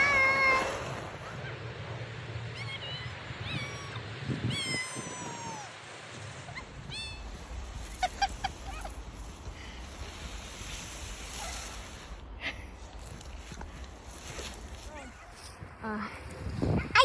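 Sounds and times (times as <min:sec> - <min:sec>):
steady low rumble: 0:00.0 - 0:11.3.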